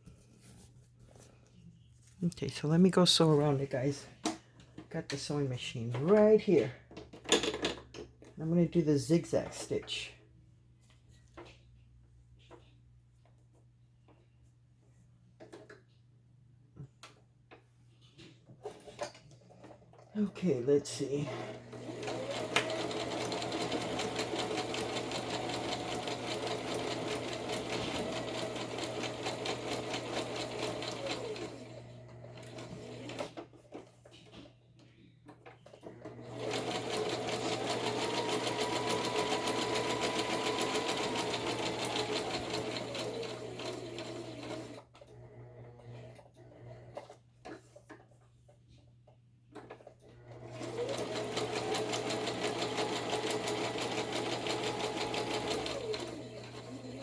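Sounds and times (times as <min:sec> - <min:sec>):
sewing machine motor whine: 0:21.3 - 0:33.3, 0:35.9 - 0:46.0, 0:50.2 - 0:57.0.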